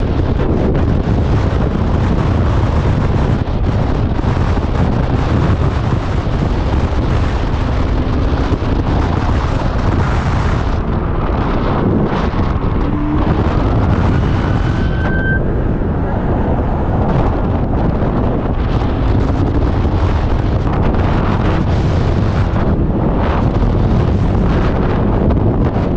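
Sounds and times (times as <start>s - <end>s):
wind buffeting microphone: 0.0s - 25.9s
faint rising whine: 11.0s - 17.0s.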